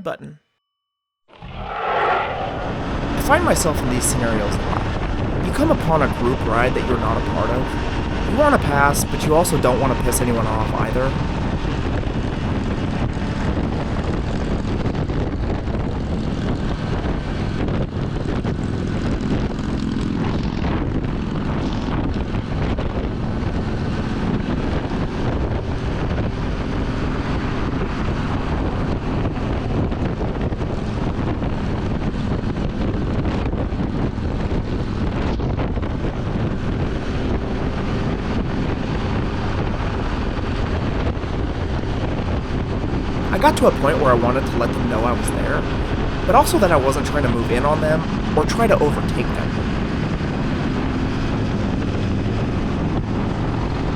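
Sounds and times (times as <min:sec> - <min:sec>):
wind rush over microphone: 0:01.4 - 0:06.3, 0:11.1 - 0:43.3.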